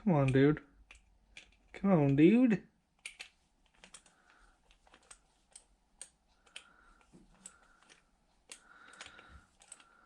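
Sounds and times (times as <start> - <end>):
hand tool clicking and tapping: 0.2 - 2.2, 3.0 - 4.1.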